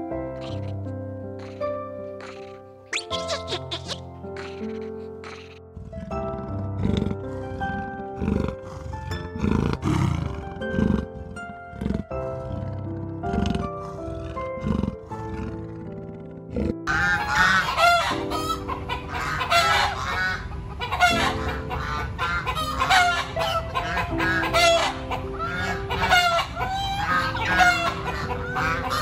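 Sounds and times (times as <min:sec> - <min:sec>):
soft background music: 0:00.0 - 0:29.0
geese and chickens calling: 0:00.4 - 0:00.7, 0:01.4 - 0:01.6, 0:02.2 - 0:05.6, 0:16.9 - 0:29.0.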